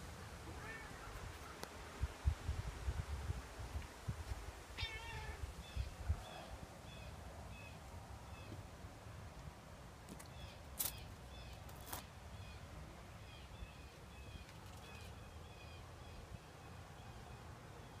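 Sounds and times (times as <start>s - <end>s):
small birds chirping: 10.1s - 18.0s.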